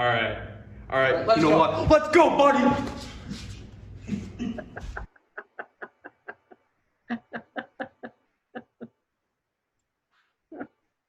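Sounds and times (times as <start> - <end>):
person laughing: 4.0 - 8.9, 10.5 - 10.8.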